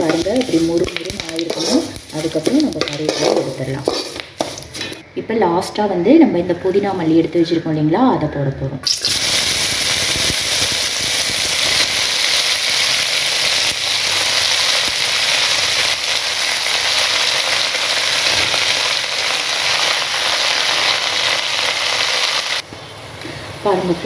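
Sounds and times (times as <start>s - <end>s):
leaves sizzling in hot oil: 0.0s - 4.8s, 8.8s - 22.7s.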